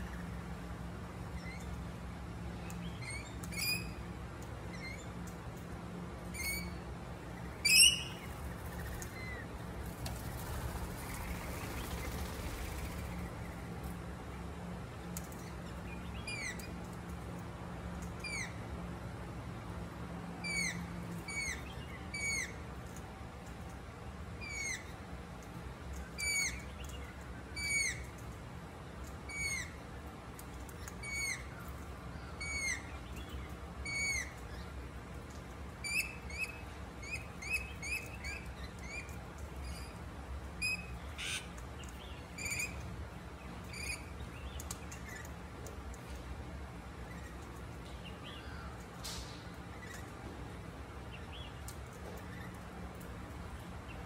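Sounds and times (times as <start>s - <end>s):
bird calling: 7.6s - 8.4s.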